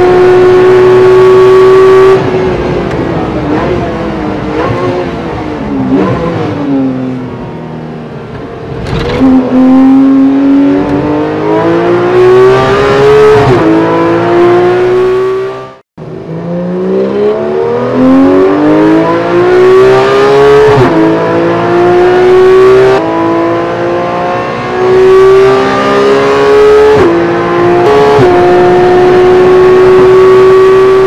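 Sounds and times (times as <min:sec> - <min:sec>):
car engine accelerating hard: 0:08.2 - 0:31.0.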